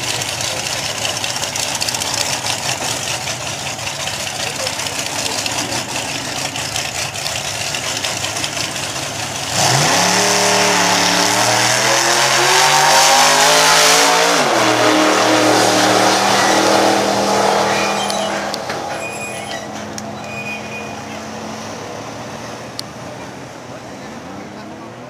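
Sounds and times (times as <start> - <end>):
car engine at full throttle: 0.0 - 19.0.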